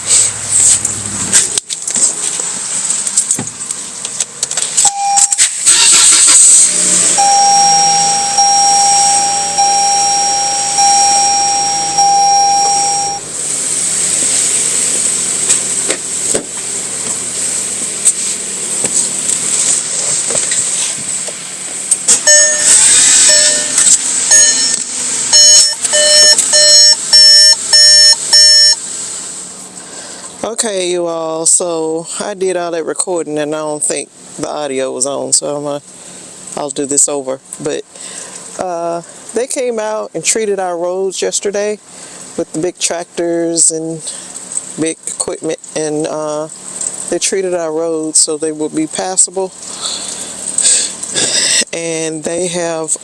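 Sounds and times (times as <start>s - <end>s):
steady high hiss: 4.6s - 30.1s
electronic warning beeps: 4.8s - 5.5s, 7.1s - 13.3s, 22.2s - 28.8s
pulsing steady tone: 7.2s - 13.3s, 22.3s - 28.8s.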